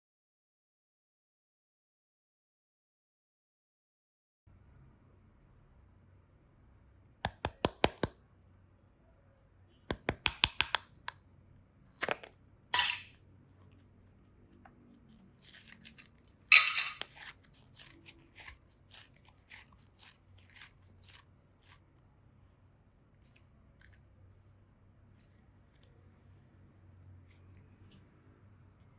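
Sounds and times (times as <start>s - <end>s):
clay and slime clicking: 7.3s - 8.1s, 9.9s - 11.2s.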